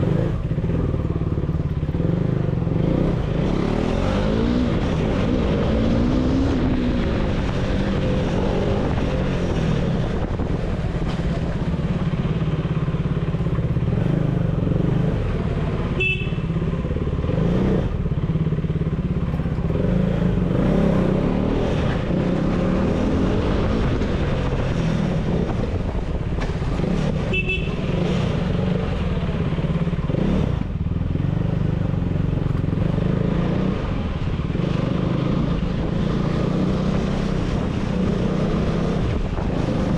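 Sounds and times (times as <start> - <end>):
motorcycle engine running: 0.0 - 21.3.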